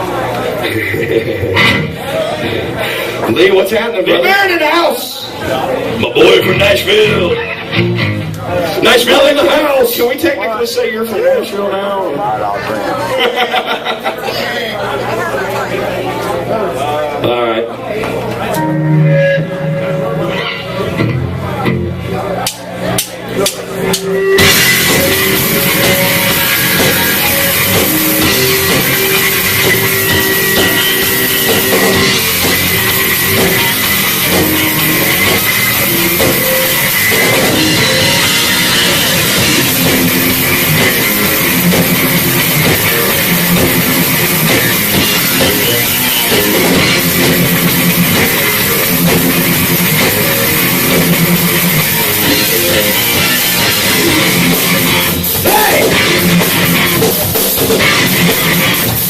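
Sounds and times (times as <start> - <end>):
distorted electric guitars: 0.0 - 10.4, 18.0 - 59.0
drum kit: 18.5 - 59.0.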